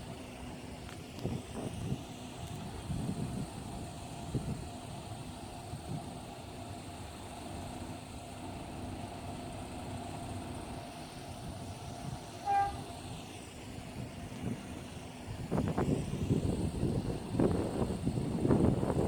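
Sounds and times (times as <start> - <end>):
low background rumble: 0.0 - 19.0
wind buffeting microphone: 0.8 - 6.3, 13.8 - 19.0
distant horn toot: 12.3 - 13.0.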